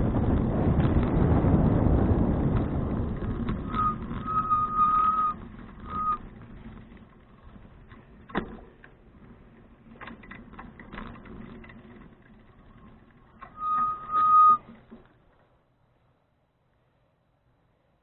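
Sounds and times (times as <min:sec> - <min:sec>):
wind and rolling noise: 0:00.0 - 0:18.0
bicycle brakes squealing: 0:03.5 - 0:06.3, 0:12.6 - 0:14.7.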